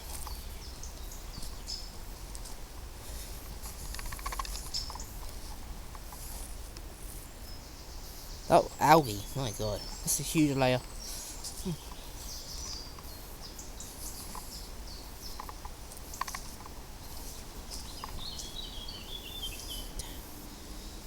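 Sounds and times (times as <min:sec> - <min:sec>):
birds chirping: 0:00.0 - 0:06.4, 0:07.1 - 0:21.0
outdoor background noise: 0:00.0 - 0:21.0
quickly varying bird phrase: 0:08.5 - 0:10.9
faint clicks: 0:15.3 - 0:18.5.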